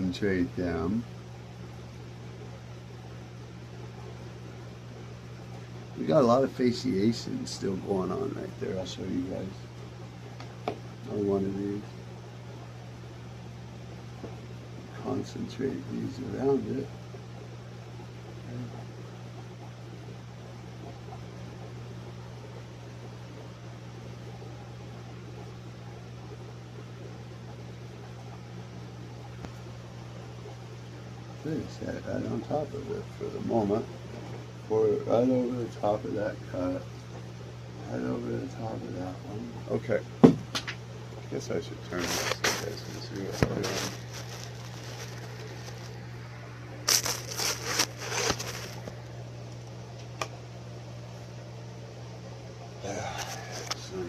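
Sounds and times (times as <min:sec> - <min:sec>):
low mechanical hum: 0:00.0 - 0:54.0
rustling scraping handling noise: 0:41.8 - 0:46.2, 0:46.8 - 0:49.1.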